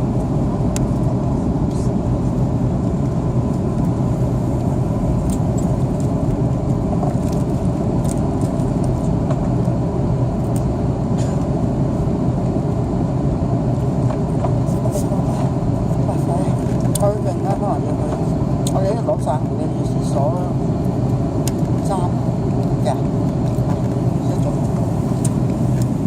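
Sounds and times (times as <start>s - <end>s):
airliner cabin drone: 0.0s - 26.0s
faint steady whine: 0.0s - 26.0s.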